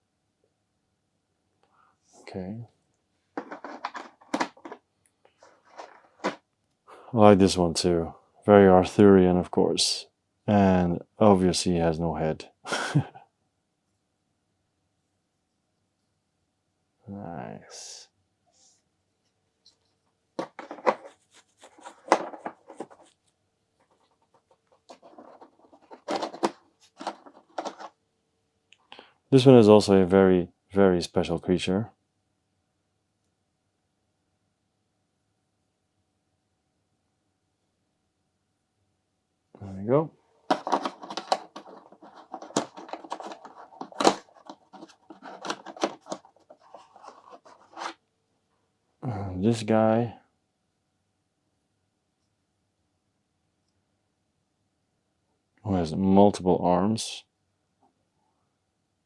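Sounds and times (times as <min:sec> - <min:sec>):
packaging rustle: 0:03.4 - 0:04.8, 0:05.5 - 0:06.4, 0:20.4 - 0:23.2, 0:23.9 - 0:27.9, 0:40.5 - 0:48.0
plastic miniatures clicking: 0:40.5 - 0:47.9.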